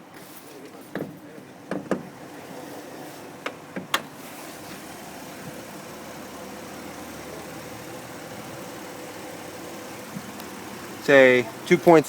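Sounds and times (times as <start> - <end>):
sharp clicks and knocks: 0.9 - 2.1
car engine idling: 0.9 - 12.0.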